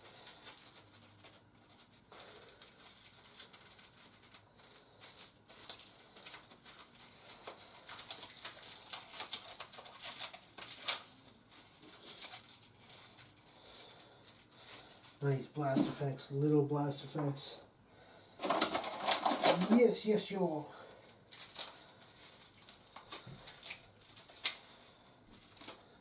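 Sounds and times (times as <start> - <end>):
plastic packaging crackling: 0.0 - 16.0, 18.2 - 26.0.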